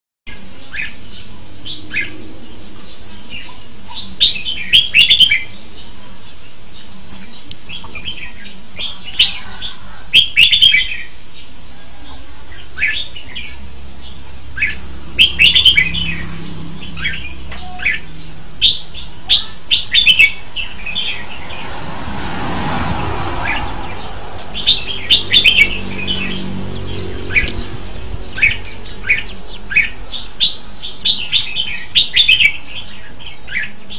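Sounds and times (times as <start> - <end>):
bird warbling song: 0.3 - 33.9
rushing noise: 13.6 - 31.0.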